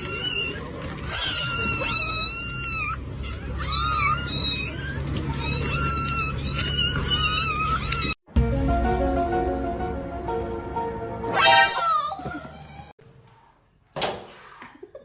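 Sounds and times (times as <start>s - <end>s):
cat meowing: 0.0s - 8.2s
music: 8.3s - 11.8s.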